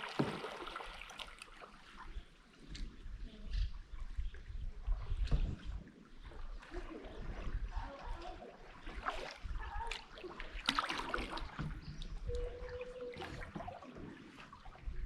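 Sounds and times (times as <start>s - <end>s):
water splash: 0.0s - 1.9s, 6.7s - 11.8s
paddle dipping in water: 0.0s - 3.2s, 3.8s - 15.0s.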